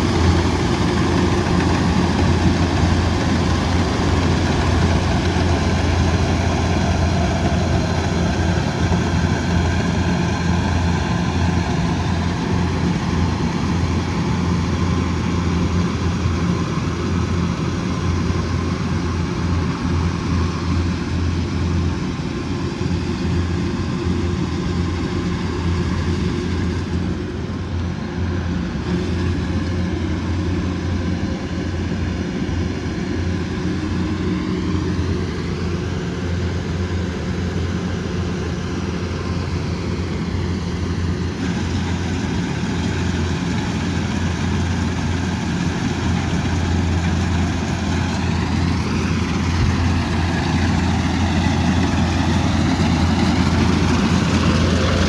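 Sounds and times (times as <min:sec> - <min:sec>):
diesel engine humming: 0:00.0 - 0:55.0.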